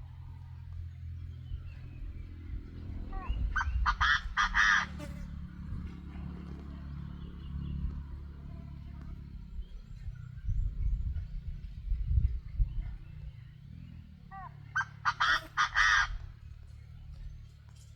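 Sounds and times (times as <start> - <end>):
steady low rumble: 0.0 - 17.8
duck calling harshly: 3.2 - 5.0.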